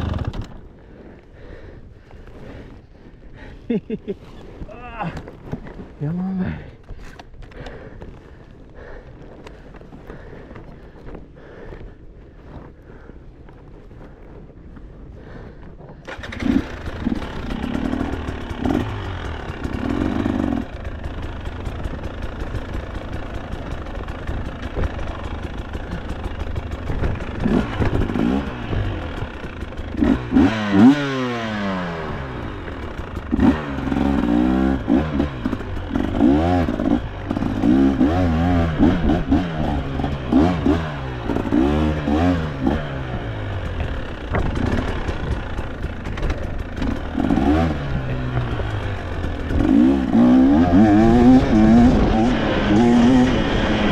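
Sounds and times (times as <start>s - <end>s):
dirt bike engine revving: 0.0s - 0.6s, 16.1s - 53.9s.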